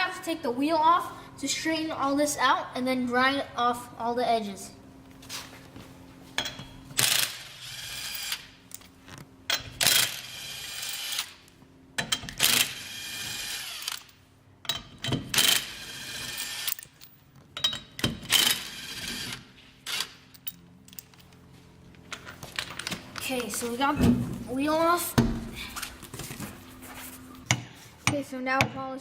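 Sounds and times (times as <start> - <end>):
impact wrench whining: 6.4 - 21.4, 22.1 - 26.5.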